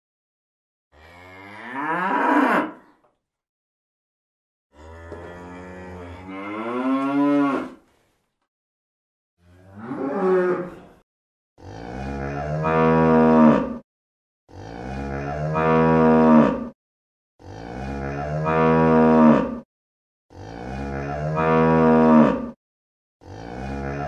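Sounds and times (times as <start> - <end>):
cow mooing: 1.0 - 2.9, 4.7 - 7.8, 9.6 - 10.8, 11.6 - 13.8, 14.5 - 16.8, 17.4 - 19.6, 20.3 - 22.6, 23.2 - 24.0.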